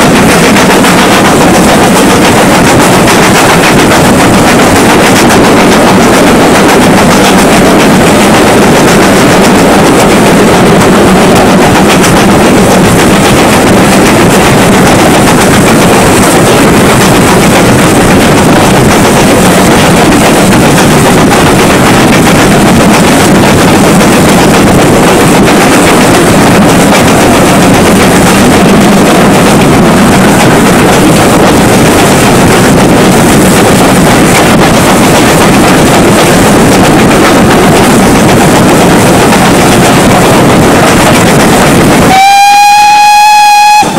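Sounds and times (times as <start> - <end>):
wind buffeting the microphone: 0.0 - 42.1
moving steam train rushing: 0.0 - 43.9.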